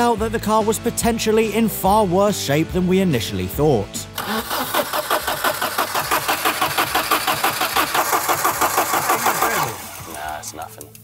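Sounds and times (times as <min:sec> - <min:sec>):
starter motor cranking engine: 0:04.2 - 0:11.0.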